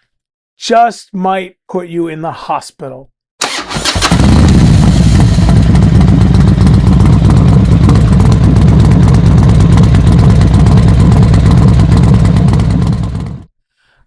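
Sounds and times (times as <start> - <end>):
motorcycle engine running: 3.4 - 13.5.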